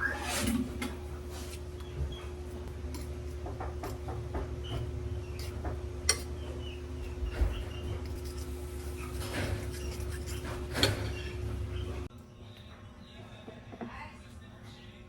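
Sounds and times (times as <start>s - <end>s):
dishes and utensils clinking: 5.4s - 6.4s.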